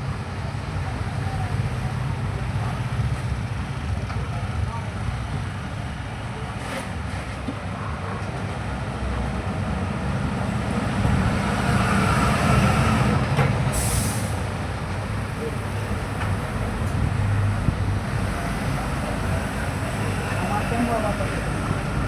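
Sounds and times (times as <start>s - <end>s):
brief hiss: 13.8s - 14.5s.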